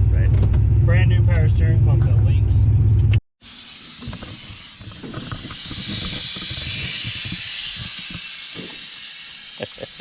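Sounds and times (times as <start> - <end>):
air suspension venting hiss: 3.4 - 10.0.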